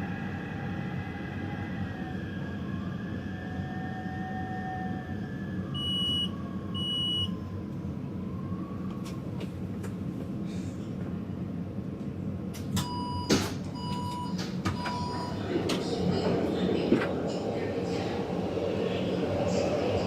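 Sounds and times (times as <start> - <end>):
train hum: 0.0 - 20.0
door-closing warning beeps: 5.8 - 7.3, 12.8 - 15.4.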